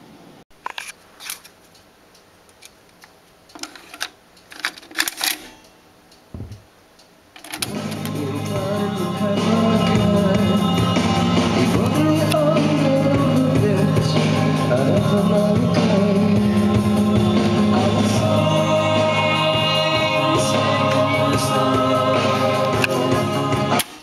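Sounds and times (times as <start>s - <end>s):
song with singing and instruments: 7.6s - 24.0s.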